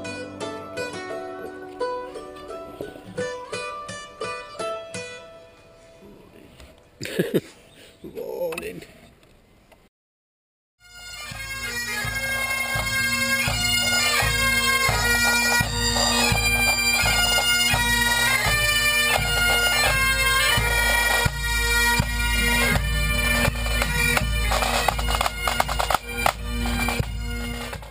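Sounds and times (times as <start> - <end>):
bagpipe drones: 10.8 - 27.9
bagpipe tune: 10.8 - 27.9
low drum beat: 12.0 - 27.9.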